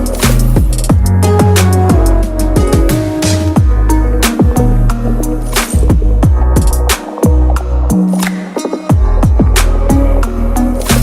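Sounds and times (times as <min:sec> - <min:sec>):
driving drum beat: 0:00.0 - 0:04.7, 0:05.6 - 0:07.6
electronic music with heavy bass: 0:00.0 - 0:11.0.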